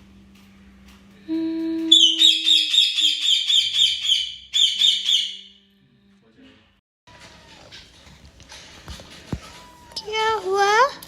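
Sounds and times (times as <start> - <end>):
person humming: 1.2 - 1.9
parrot shrill calls: 1.9 - 5.5.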